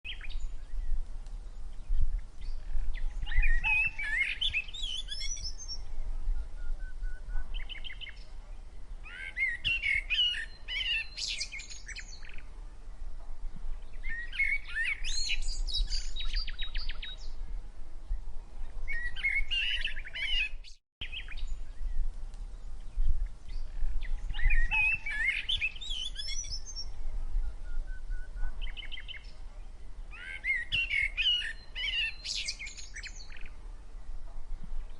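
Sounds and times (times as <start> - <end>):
sparrows chirping: 1.7 - 5.9, 7.4 - 8.3, 9.0 - 12.5, 13.8 - 17.4, 18.9 - 27.0, 27.8 - 33.6.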